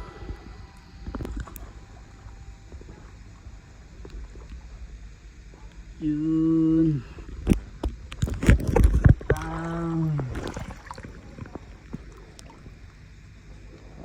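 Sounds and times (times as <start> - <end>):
knocks and splashing water: 8.2 - 12.8.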